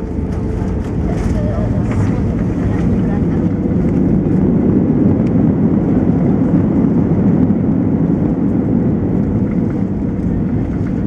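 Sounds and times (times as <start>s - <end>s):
airplane cabin engine rumble: 0.0s - 11.0s
rushing airflow: 0.0s - 11.0s.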